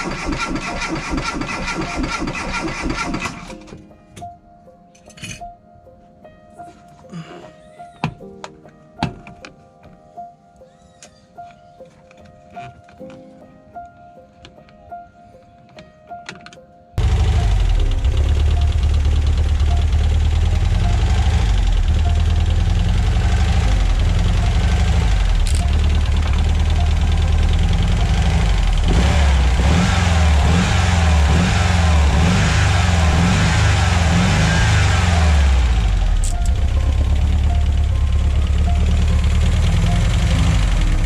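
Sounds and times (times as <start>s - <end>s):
engine revving up and down: 17.0s - 41.0s.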